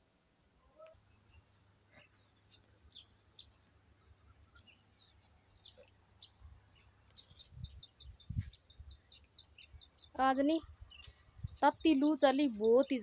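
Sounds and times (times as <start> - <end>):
small birds chirping: 0.1 - 13.0.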